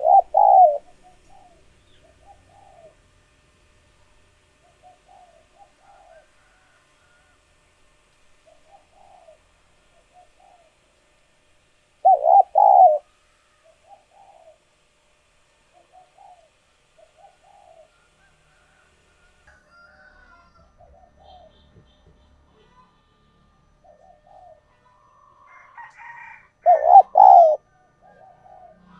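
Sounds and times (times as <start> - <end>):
doves cooing: 0.0 - 3.1, 4.6 - 7.3, 8.4 - 10.8, 12.0 - 14.6, 15.7 - 19.4, 20.0 - 21.8, 23.7 - 24.8, 25.4 - 28.9.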